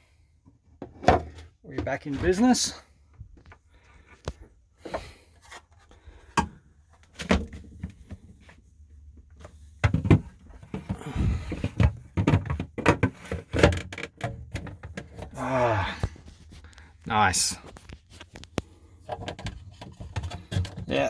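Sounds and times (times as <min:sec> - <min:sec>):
clunks clatter and rubbing: 0:09.2 - 0:15.4, 0:17.7 - 0:21.0.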